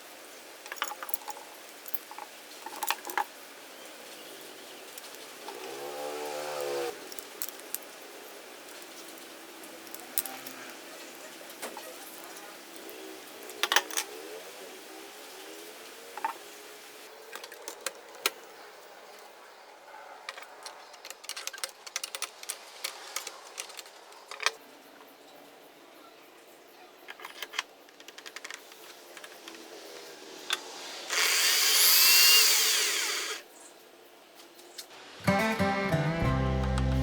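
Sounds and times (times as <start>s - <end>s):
electric drill whining: 31.1s - 33.4s.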